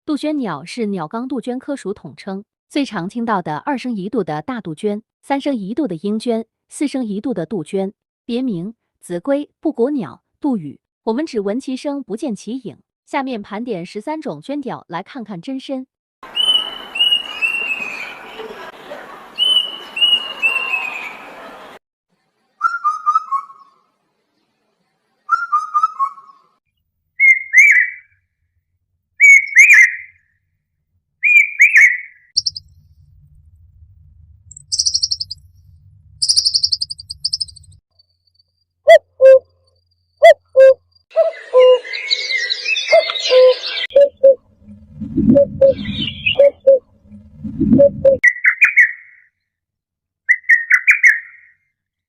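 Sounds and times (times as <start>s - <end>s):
cuckoo calls: 16.3s - 18.6s, 19.4s - 21.5s, 27.2s - 28.1s, 29.2s - 30.2s, 31.2s - 32.6s, 34.6s - 35.4s, 36.2s - 37.6s, 38.9s - 39.6s, 40.2s - 44.4s, 45.2s - 46.8s, 50.3s - 51.5s.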